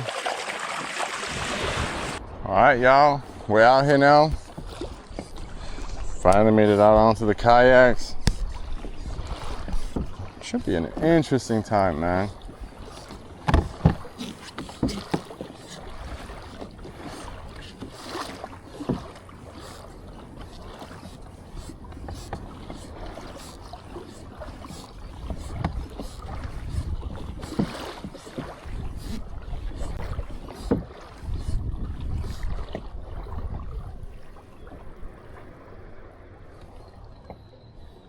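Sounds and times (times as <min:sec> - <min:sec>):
water splashing around kayak: 0:00.0 - 0:38.0
wind rumble on microphone: 0:01.3 - 0:03.6, 0:04.2 - 0:14.2, 0:25.0 - 0:27.8, 0:28.6 - 0:36.5.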